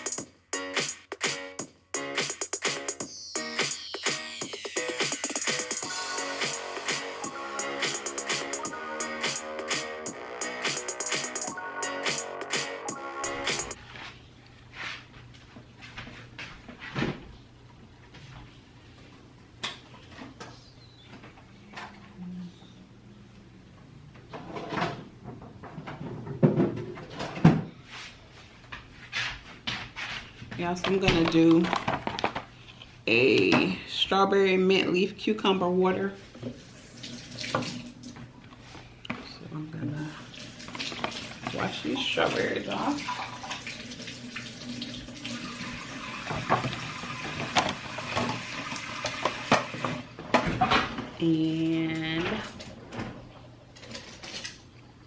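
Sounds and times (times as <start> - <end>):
rustling clatter of objects: 28.8 - 32.8, 52.1 - 54.6.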